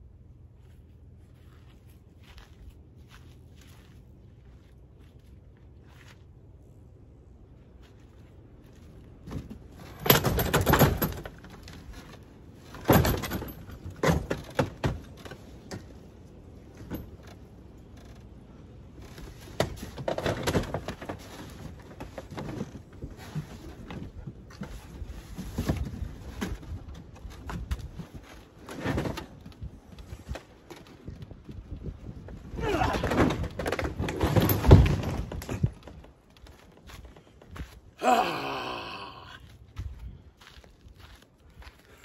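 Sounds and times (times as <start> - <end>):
parts knocking and rattling: 9.2 - 31.6, 32.7 - 37.6.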